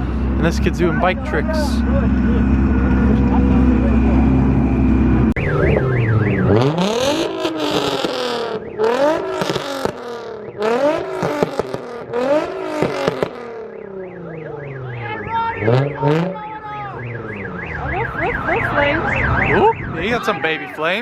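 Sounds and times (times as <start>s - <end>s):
car engine revving: 0.0s - 20.1s
exhaust pops and crackles: 5.4s - 13.6s.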